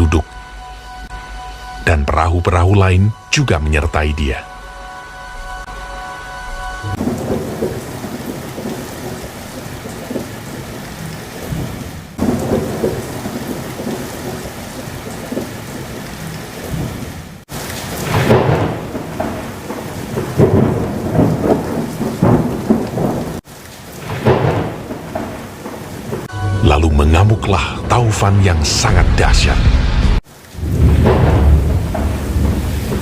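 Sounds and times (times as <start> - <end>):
heavy rain: 0.0 - 33.0
thunder rumbling: 6.3 - 33.0.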